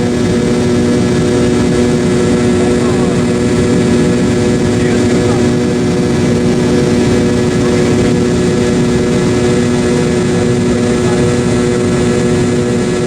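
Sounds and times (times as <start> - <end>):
jet engine rush in cabin: 0.0 - 13.0.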